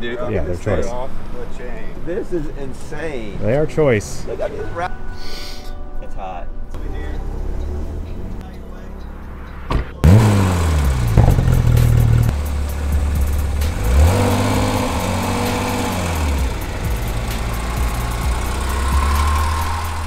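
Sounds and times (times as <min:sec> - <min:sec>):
car engine idling: 0:06.6 - 0:20.0
car engine starting and revving: 0:06.8 - 0:20.0.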